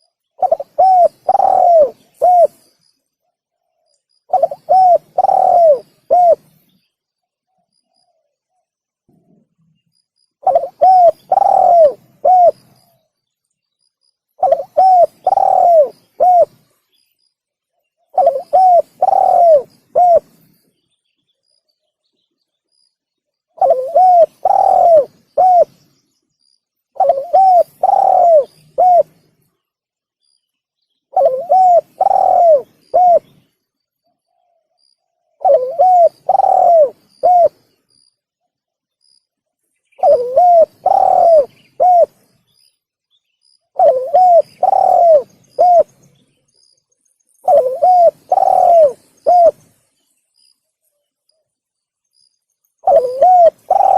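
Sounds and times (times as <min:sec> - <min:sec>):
dove cooing: 0:00.0 - 0:02.7, 0:04.3 - 0:06.6, 0:10.4 - 0:13.0, 0:14.4 - 0:16.7, 0:18.1 - 0:20.4, 0:23.6 - 0:25.8, 0:27.0 - 0:29.2, 0:31.1 - 0:33.5, 0:35.3 - 0:37.7, 0:40.0 - 0:42.2, 0:43.7 - 0:46.0, 0:47.4 - 0:49.8, 0:52.8 - 0:53.9.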